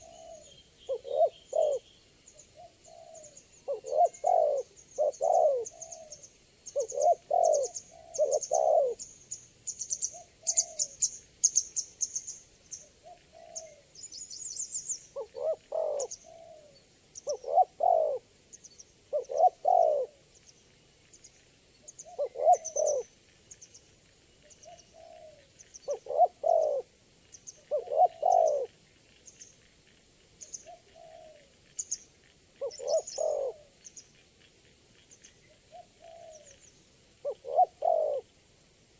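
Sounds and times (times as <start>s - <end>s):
dove cooing: 0.0s - 1.9s, 2.5s - 9.0s, 9.9s - 11.1s, 12.9s - 14.0s, 15.1s - 18.3s, 19.1s - 20.2s, 22.0s - 23.1s, 24.6s - 26.9s, 27.6s - 28.8s, 30.6s - 31.6s, 32.6s - 33.8s, 35.6s - 36.6s, 37.2s - 38.3s
small birds chirping: 0.0s - 38.3s.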